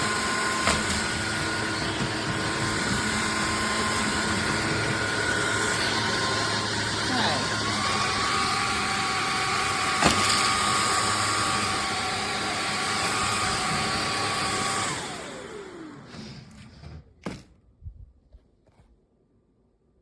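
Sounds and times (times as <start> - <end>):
vacuum cleaner whine: 0.0 - 17.4.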